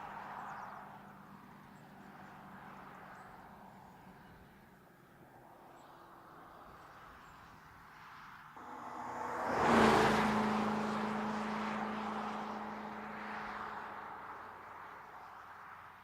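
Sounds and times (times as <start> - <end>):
car driving past: 8.6 - 15.6.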